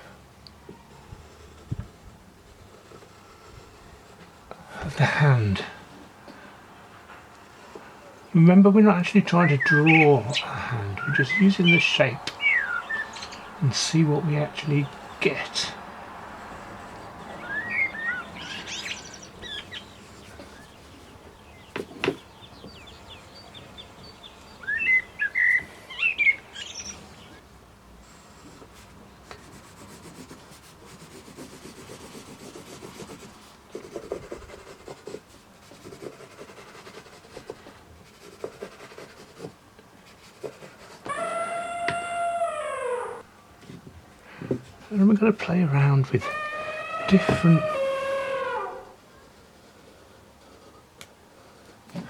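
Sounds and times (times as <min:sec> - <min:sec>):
faint rubbing: 0:00.8 - 0:06.0
birds chirping and singing: 0:08.1 - 0:27.4, 0:45.0 - 0:48.9.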